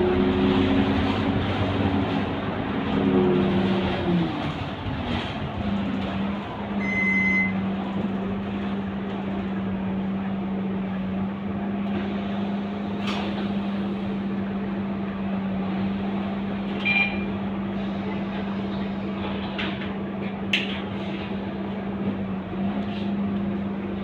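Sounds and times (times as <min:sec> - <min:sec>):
short high beep: 0:06.8 - 0:07.6, 0:16.8 - 0:17.2.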